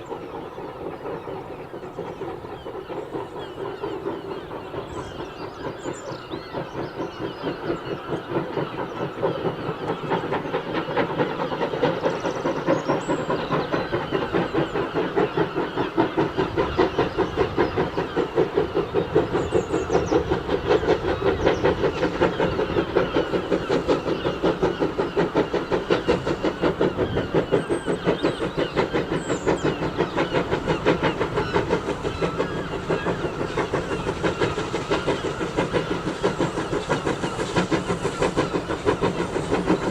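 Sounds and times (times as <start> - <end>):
steam locomotive exhaust beats: 0.0 - 39.9.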